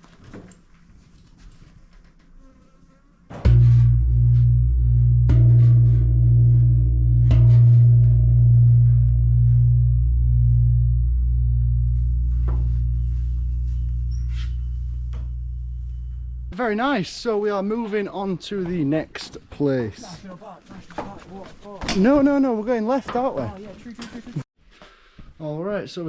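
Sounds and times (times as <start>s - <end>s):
large gong struck and humming: 3.5s - 16.5s.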